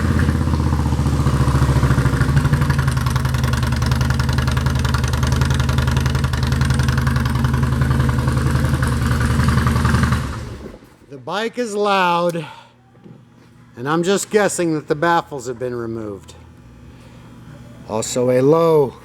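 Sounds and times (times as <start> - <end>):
motorcycle engine idling loudly: 0.0 - 10.4.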